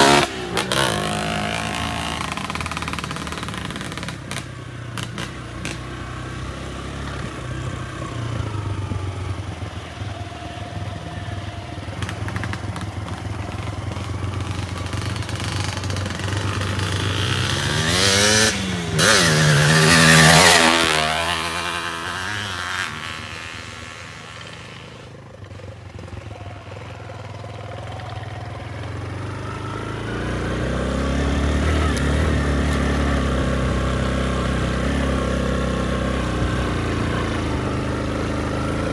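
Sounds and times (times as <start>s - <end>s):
motorcycle engines running: 0.0s - 38.9s
motorcycle passing by: 0.0s - 38.9s.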